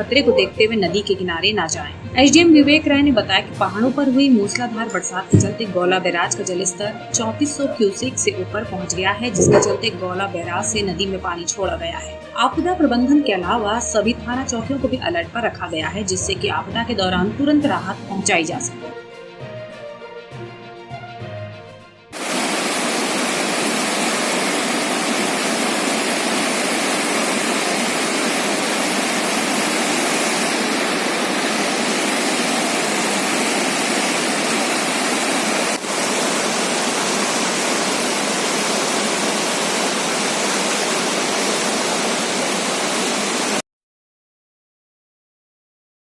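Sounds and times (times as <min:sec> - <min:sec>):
flooded river rushing: 0:22.2 - 0:43.6.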